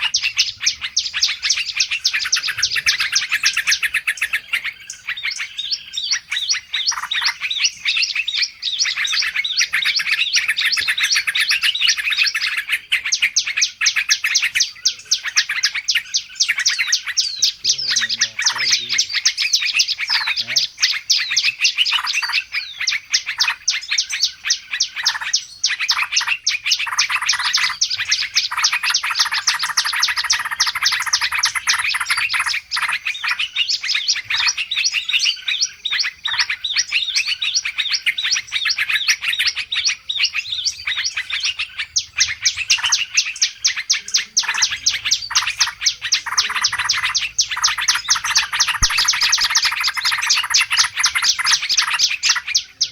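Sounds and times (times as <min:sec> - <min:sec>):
songbirds chirping and twittering: 0:00.0 - 0:52.9.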